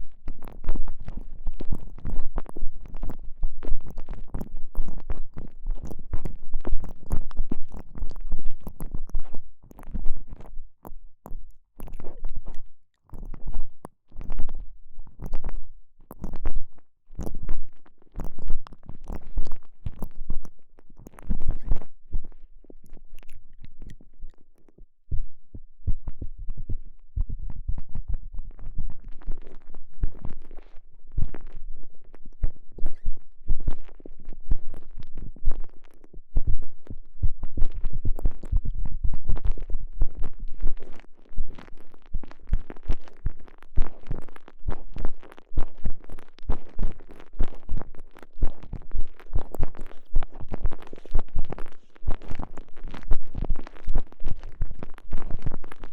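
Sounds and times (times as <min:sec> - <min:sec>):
squishing and rubbing on microphone: 0:00.0 - 0:55.9.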